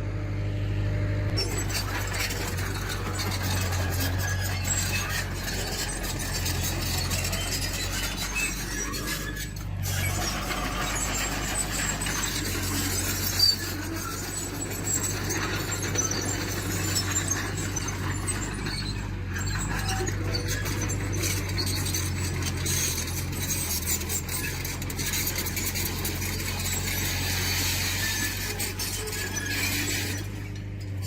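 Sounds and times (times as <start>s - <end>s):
low engine drone: 0.0s - 16.1s
steel tracks squealing and clinking: 1.3s - 31.0s.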